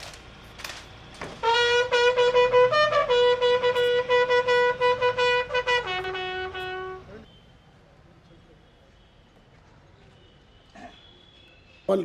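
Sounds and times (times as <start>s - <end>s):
brassy horn blasts: 1.4s - 7.3s.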